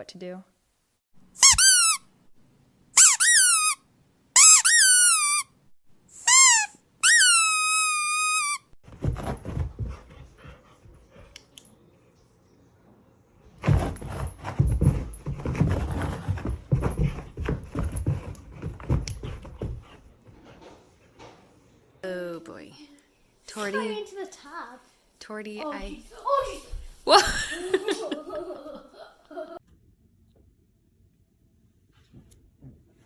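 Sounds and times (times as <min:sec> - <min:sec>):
high-pitched squeaks: 0:01.4 - 0:02.0, 0:04.4 - 0:05.5, 0:06.3 - 0:08.7
scuffling and rustling: 0:25.6 - 0:28.4.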